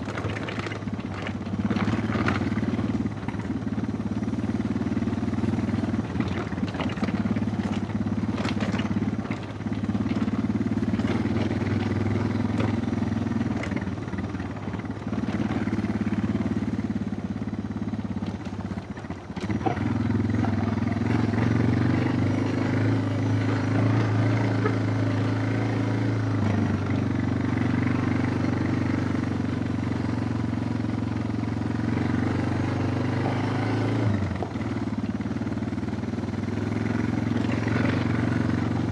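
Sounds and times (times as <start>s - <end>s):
knocks and rattles: 0.0s - 3.5s, 6.0s - 13.9s, 18.2s - 22.6s
motorcycle engine running: 0.0s - 38.9s.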